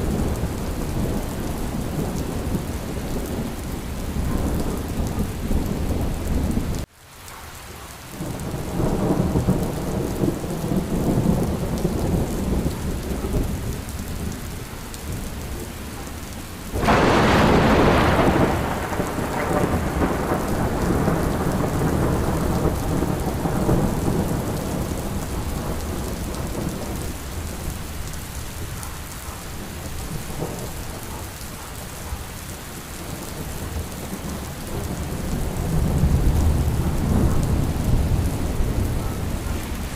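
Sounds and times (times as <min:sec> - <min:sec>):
low rolling thunder: 0:00.0 - 0:06.9, 0:08.2 - 0:39.9
heavy rain: 0:00.0 - 0:39.9
loud thunderclap: 0:16.8 - 0:27.7, 0:33.4 - 0:39.9.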